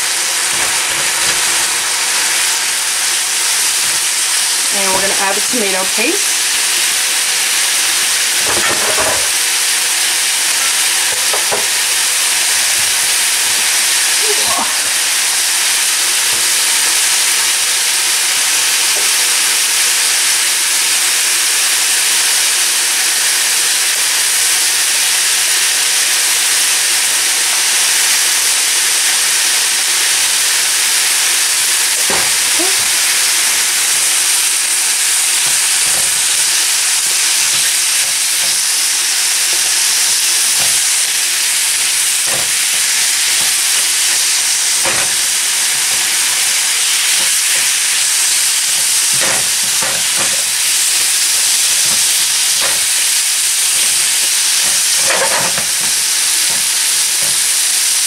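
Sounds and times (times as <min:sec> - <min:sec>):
food sizzling in a skillet: 0:00.0 - 0:58.0
spatula scraping a pan: 0:54.6 - 0:57.4.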